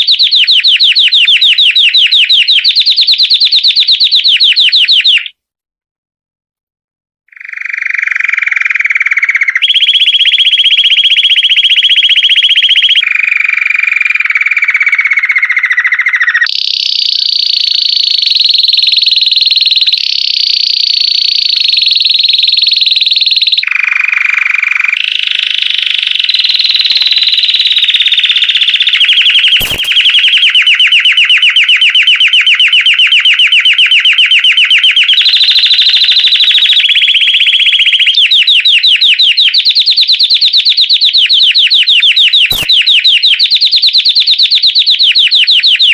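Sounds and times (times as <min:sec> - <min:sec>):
canary singing rolling trills: 0:00.0 - 0:05.3, 0:07.3 - 0:45.9
click: 0:29.5 - 0:30.3, 0:42.4 - 0:42.8.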